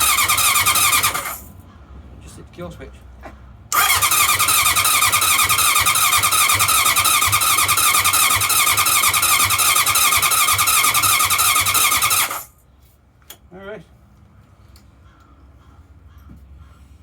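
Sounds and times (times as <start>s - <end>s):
motorcycle starter cranking: 0.0s - 1.5s, 3.7s - 12.5s.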